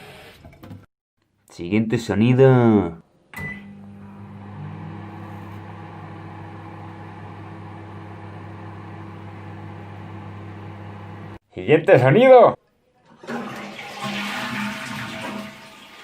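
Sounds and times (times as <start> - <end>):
electrical appliance humming: 3.4 - 11.4.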